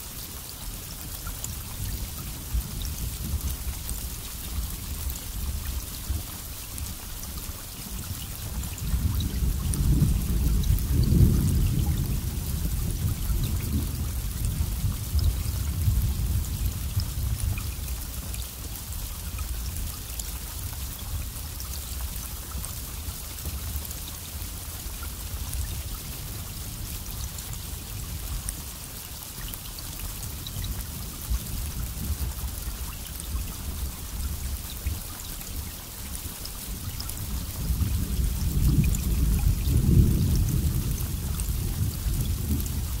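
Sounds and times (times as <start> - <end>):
steady rain falling: 0.0 - 43.0
low rolling thunder: 8.8 - 17.7, 37.2 - 43.0.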